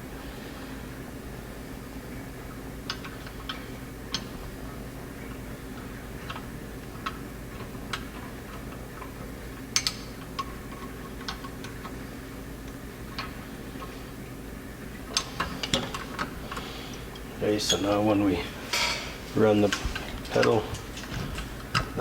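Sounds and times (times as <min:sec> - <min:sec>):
steady low hum: 0:00.0 - 0:22.0
small metal parts clicking: 0:09.7 - 0:12.0.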